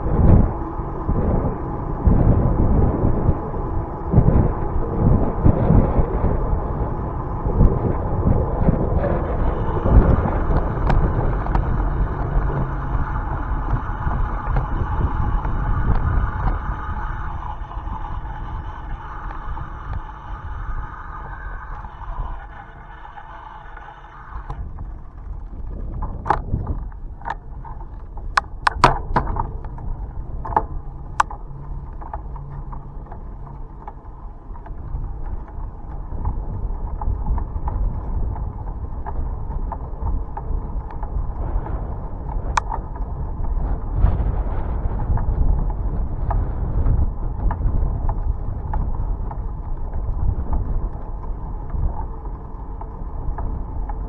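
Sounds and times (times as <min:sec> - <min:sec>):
bicycle tyres rolling: 0:00.0 - 0:54.0
wind rumble on microphone: 0:00.0 - 0:54.0
bike clicks and rattles: 0:26.0 - 0:29.8.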